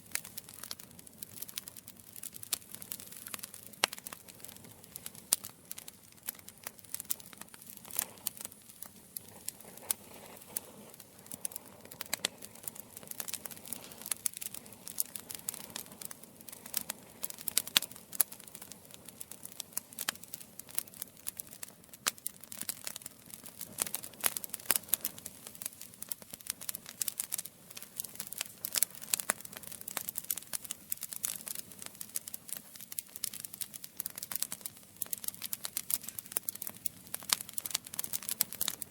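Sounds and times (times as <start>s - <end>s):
campfire crackling: 0.0s - 38.9s
soft low hiss: 1.4s - 20.9s.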